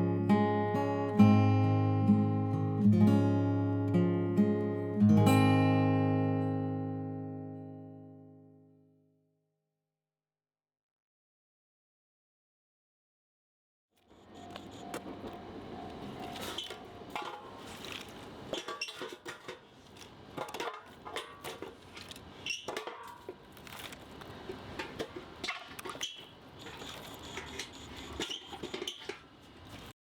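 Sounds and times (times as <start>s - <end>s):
cutlery and dishes clinking: 16.2s - 29.9s.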